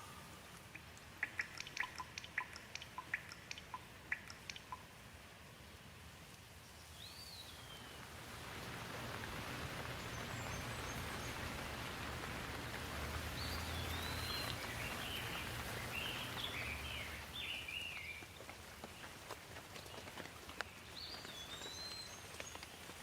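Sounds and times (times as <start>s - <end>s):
bird chirping: 0.0s - 4.9s, 9.4s - 18.4s, 20.7s - 22.6s
single raindrops tapping: 0.0s - 4.9s, 8.0s - 23.0s
steady rain falling: 0.0s - 23.0s.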